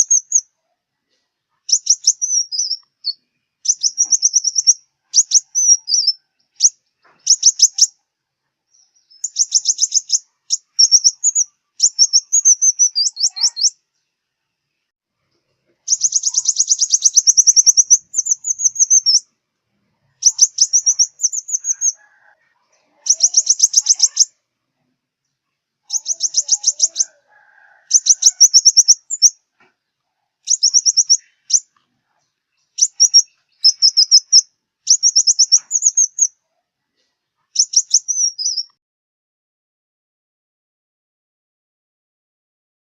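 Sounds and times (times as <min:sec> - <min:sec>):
sunbird high trilling chirps: 0:00.0 - 0:00.5, 0:01.7 - 0:08.0, 0:08.7 - 0:13.8, 0:15.8 - 0:19.3, 0:20.1 - 0:22.3, 0:23.0 - 0:24.4, 0:25.9 - 0:29.4, 0:30.4 - 0:31.7, 0:32.8 - 0:36.4, 0:37.6 - 0:38.8.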